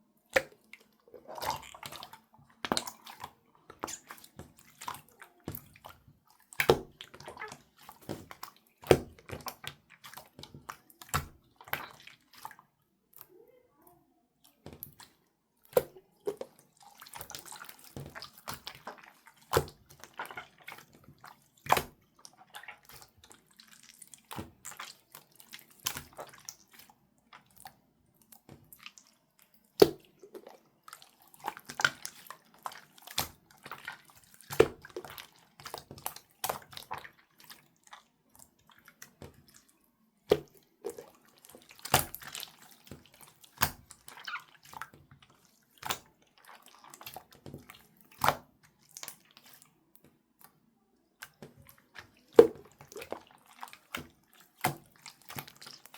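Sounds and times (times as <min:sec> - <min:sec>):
slime squishing by hand: 0:00.2 - 0:55.9.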